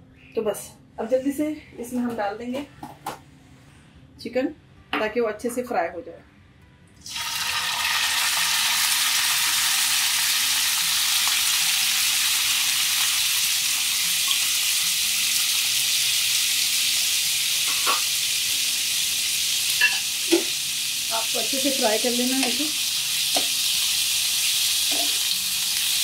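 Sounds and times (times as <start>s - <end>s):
chicken sizzling in frying pan: 7.1s - 26.0s.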